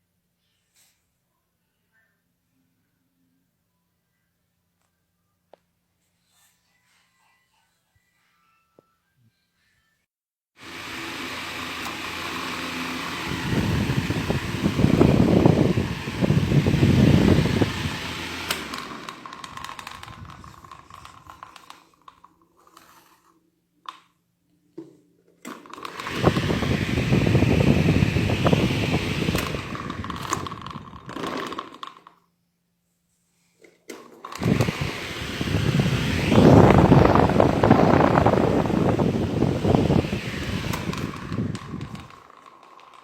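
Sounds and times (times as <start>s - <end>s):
electric fan blowing air: 10.6s - 22.3s, 25.5s - 31.9s, 34.1s - 43.0s
wind buffeting microphone: 13.3s - 18.0s, 26.1s - 31.1s, 34.4s - 42.1s.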